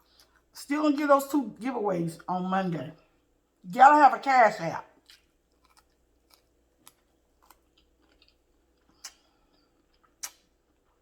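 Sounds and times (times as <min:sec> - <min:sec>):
soft chewing mouth clicks: 0:05.0 - 0:11.0.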